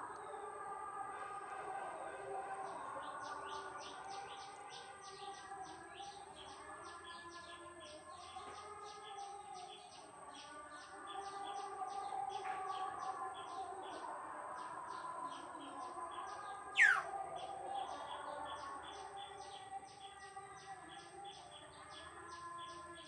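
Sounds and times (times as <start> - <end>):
small bird chirping: 16.8 - 17.1.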